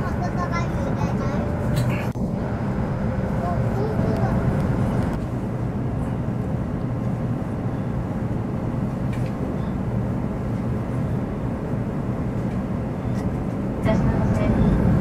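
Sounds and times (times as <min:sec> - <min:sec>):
train rumble and hiss inside cabin: 0:00.0 - 0:15.0.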